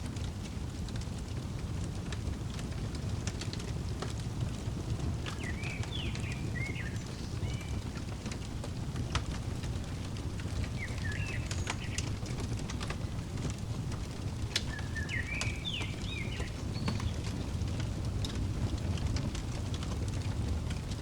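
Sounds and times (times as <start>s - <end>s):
wood fire crackling and popping: 0.0s - 21.0s
steady low rumble: 3.8s - 21.0s
songbird chirping: 5.0s - 17.8s.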